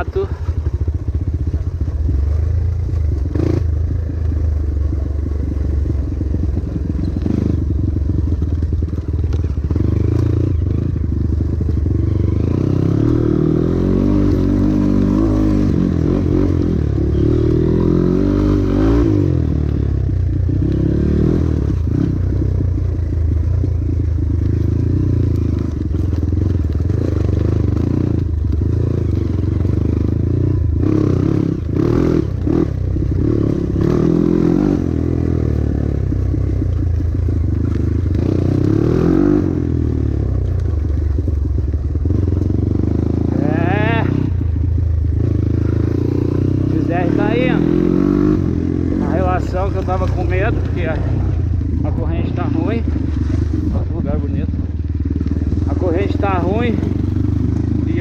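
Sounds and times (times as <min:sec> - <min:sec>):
motorbike engine running: 0:00.0 - 0:58.0.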